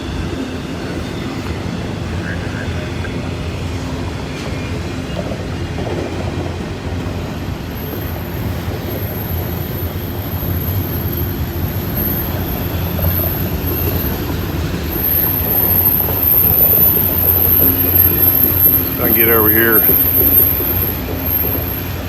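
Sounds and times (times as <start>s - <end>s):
freight train rumbling past: 0.0s - 22.0s
high-pitched squeal: 7.4s - 22.0s.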